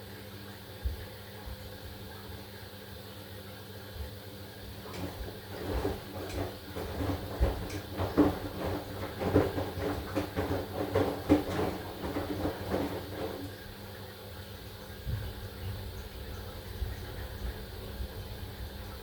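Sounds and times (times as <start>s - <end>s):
washing machine humming: 0.0s - 19.0s
laundry knocking in washing machine: 4.7s - 13.8s.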